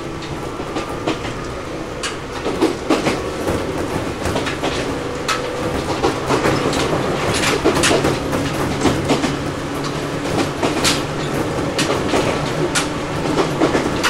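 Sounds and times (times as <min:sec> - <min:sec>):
low train running hum: 0:00.0 - 0:14.0
train wheels clicking over rail joints: 0:00.0 - 0:14.0.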